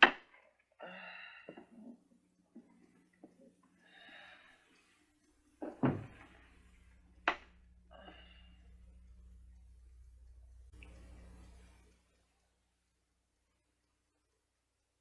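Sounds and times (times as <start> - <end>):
heavy thud: 5.6 - 6.3.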